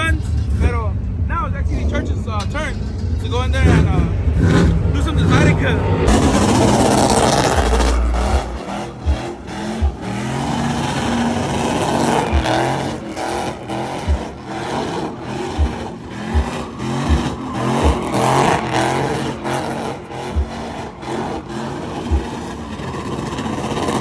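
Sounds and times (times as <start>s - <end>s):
strong low thumps: 0.0s - 12.7s, 14.1s - 14.4s, 15.6s - 18.2s, 20.4s - 20.6s
truck engine revving: 0.0s - 24.0s.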